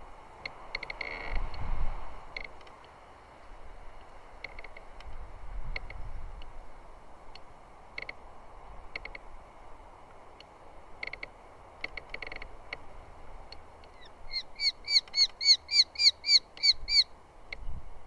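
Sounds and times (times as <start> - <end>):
bird calling sharp notes: 13.9 - 17.1.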